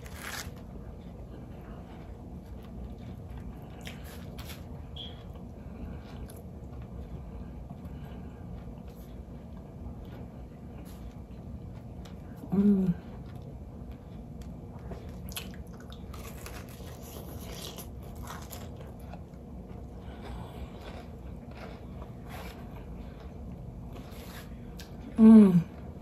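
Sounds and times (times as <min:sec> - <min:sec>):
chewing and crunching food: 0:00.0 - 0:26.0
voiced hum falling in pitch: 0:12.4 - 0:13.2, 0:25.0 - 0:25.9.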